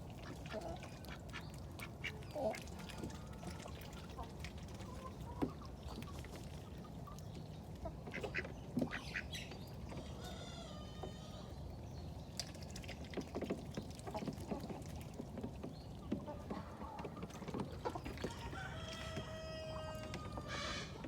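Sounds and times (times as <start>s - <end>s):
ducks quacking: 0.2s - 5.6s, 7.8s - 9.4s.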